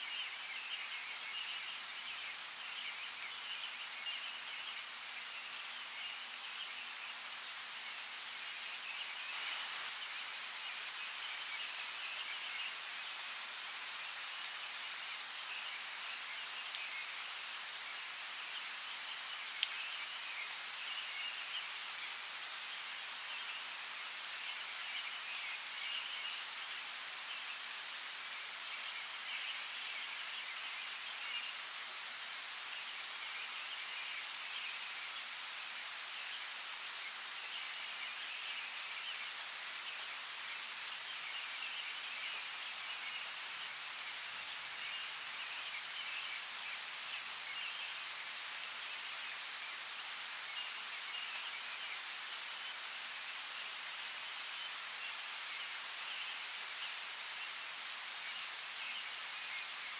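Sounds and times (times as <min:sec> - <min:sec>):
steady rain: 0:00.0 - 0:59.9
raindrops pattering: 0:06.3 - 0:43.9.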